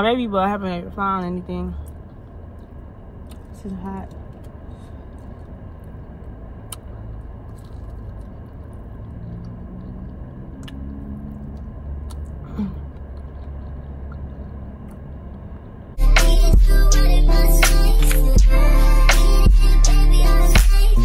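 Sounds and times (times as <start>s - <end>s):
low rumble inside car: 0.0s - 21.0s
chewing and biting: 1.8s - 15.8s.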